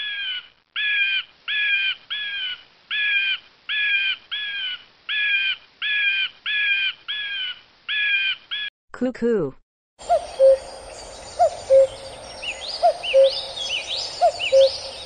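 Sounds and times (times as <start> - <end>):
large bird harsh calls: 10.0 - 15.0.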